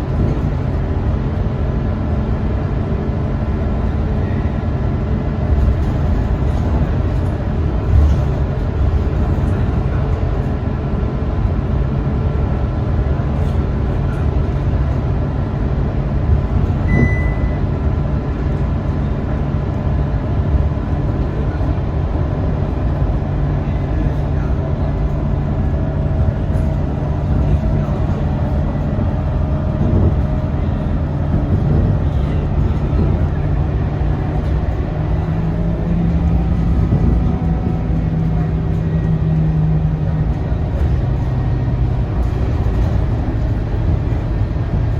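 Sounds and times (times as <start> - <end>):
bus engine drone: 0.0 - 44.9
road rumble: 0.0 - 44.9
high beep: 16.9 - 17.7.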